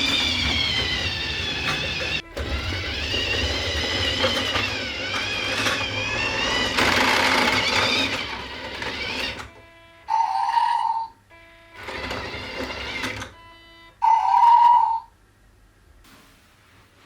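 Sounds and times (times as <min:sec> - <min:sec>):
rattling: 0:00.0 - 0:09.5
electric toy motor whining: 0:00.0 - 0:13.4.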